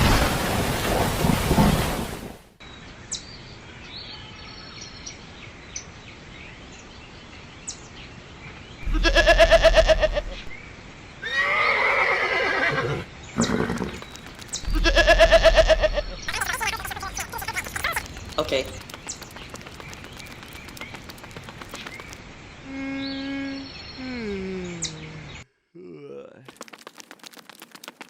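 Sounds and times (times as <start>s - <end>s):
rain noise: 0.0s - 2.6s, 13.4s - 22.8s, 26.4s - 28.0s
loud shaking animal call: 8.8s - 10.5s, 13.4s - 22.2s
faint background chirps: 13.2s - 27.7s.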